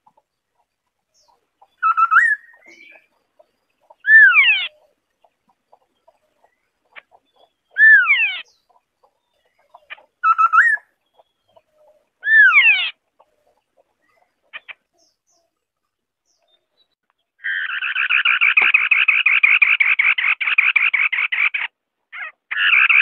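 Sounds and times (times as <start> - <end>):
bird singing whistled notes: 1.7 - 3.1, 10.2 - 11.6.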